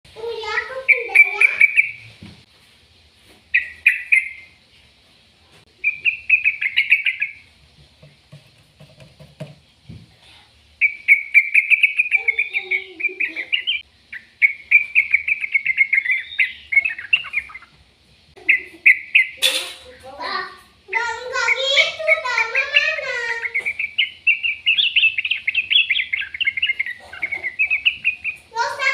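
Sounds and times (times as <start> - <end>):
small bird chirping: 0.2 - 2.2, 3.5 - 4.6, 5.7 - 7.5, 10.8 - 17.8, 18.4 - 28.9.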